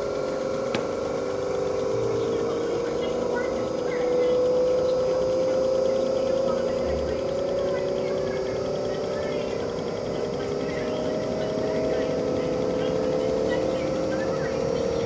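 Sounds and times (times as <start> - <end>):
window air conditioner running: 0.0 - 15.0.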